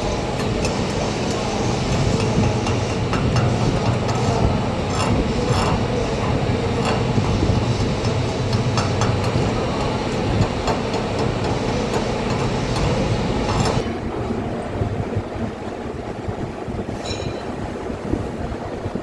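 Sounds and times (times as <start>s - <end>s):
welding arc hissing and crackling: 0.0s - 13.8s
constant low hum: 0.0s - 19.0s.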